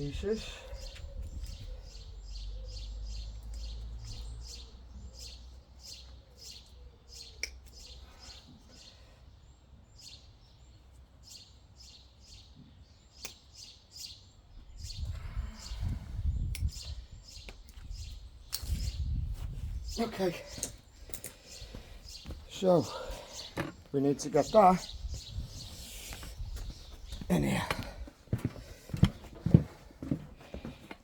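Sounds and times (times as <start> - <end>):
small bird chirping: 0.0 - 28.0.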